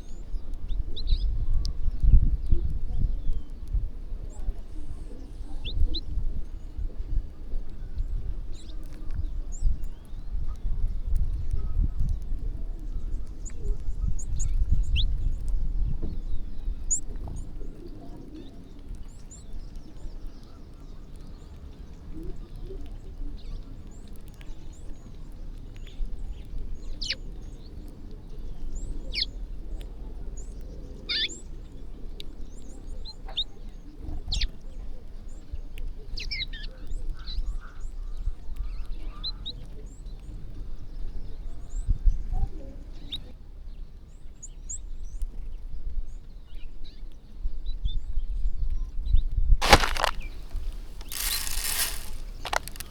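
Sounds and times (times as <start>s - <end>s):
small birds chirping: 0.0s - 6.7s, 49.6s - 52.9s.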